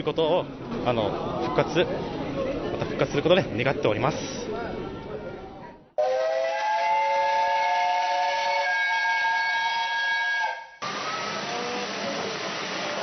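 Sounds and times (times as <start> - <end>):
steam locomotive whistle: 6.0 - 13.0.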